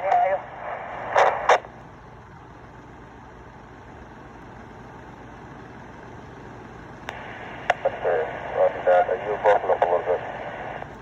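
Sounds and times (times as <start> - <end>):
radio noise bursts: 0.0 - 1.7, 7.1 - 10.9
steady low radio noise: 0.0 - 11.0.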